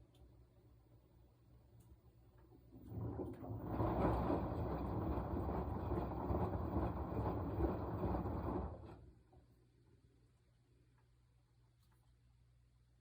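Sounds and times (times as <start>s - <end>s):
washing machine drum tumbling: 2.7s - 9.4s.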